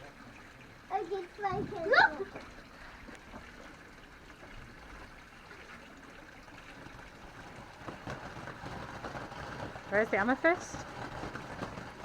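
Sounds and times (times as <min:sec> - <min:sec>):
firework fountain hissing: 0:07.1 - 0:12.0.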